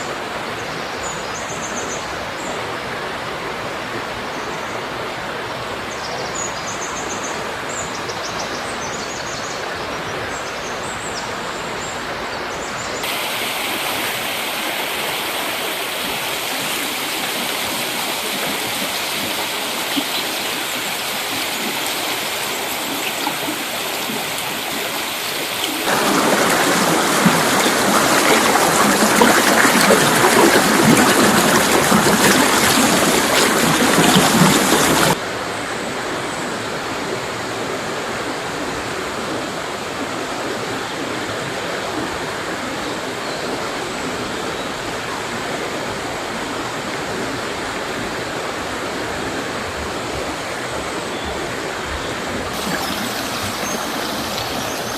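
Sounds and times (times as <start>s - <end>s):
river rushing over rocks: 13.0s - 35.6s, 46.9s - 54.9s.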